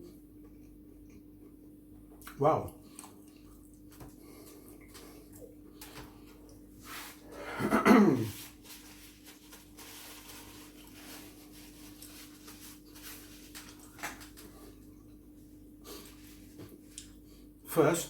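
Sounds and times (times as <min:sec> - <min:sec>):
low electrical hum: 0:00.0 - 0:18.0
chewing and mouth noises: 0:02.2 - 0:06.7.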